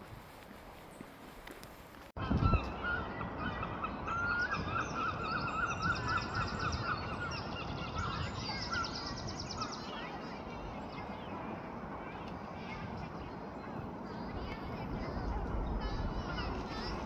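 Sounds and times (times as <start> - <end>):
birds calling: 0.0 - 17.0
steady low rumble: 4.8 - 17.0.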